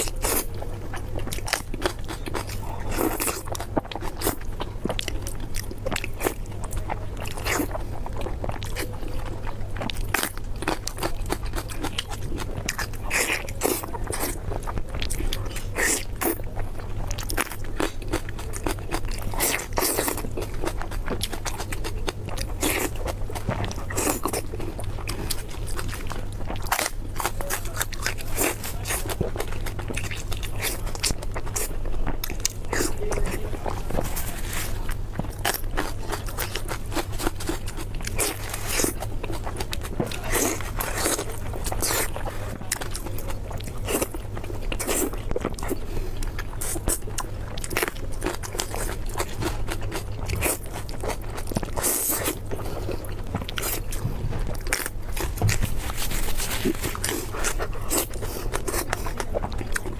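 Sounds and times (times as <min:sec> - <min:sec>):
crunching and chewing crispy food: 0:00.0 - 0:59.9
steady low hum: 0:00.0 - 0:59.9.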